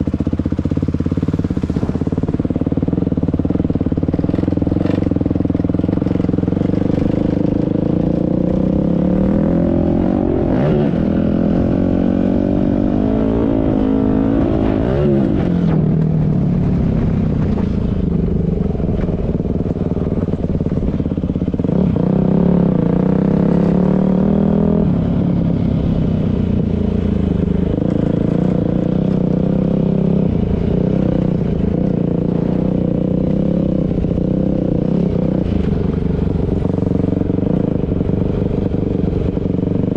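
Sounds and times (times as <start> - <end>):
dirt bike engine revving: 0.7 - 16.0, 20.1 - 25.4.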